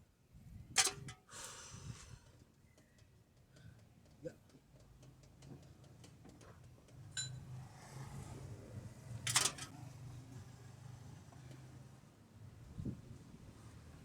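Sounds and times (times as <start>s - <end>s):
tool clinking on metal: 9.3s - 9.7s.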